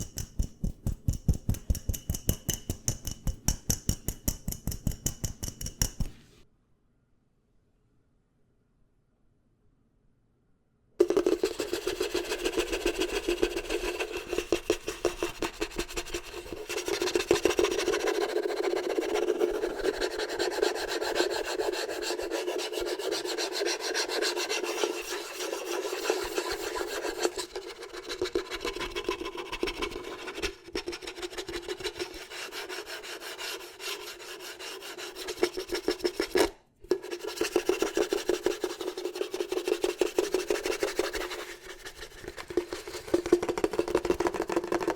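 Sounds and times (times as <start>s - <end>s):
fast scratching close to microphone: 11.0s - 44.9s.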